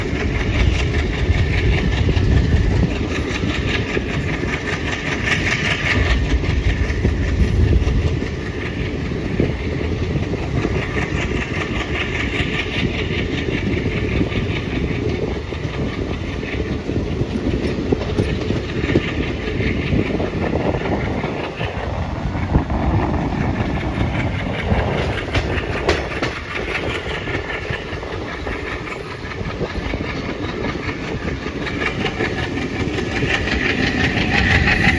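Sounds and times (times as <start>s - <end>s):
diesel locomotive engine chugging: 0.0s - 34.9s.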